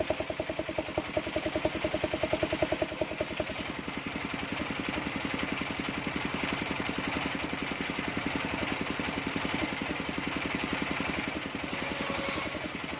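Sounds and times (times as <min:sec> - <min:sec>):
sawmill engine running: 0:00.0 - 0:12.9.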